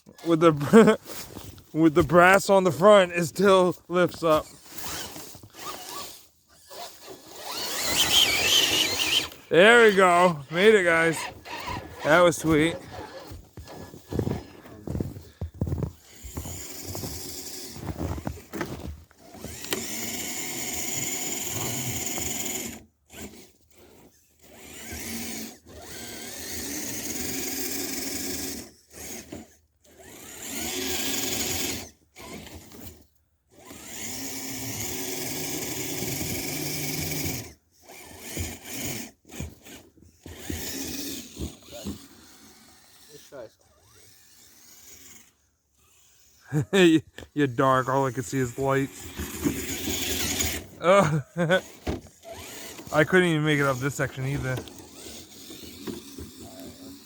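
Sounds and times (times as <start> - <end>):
electric motor whining: 3.9 - 46.5, 47.2 - 57.0.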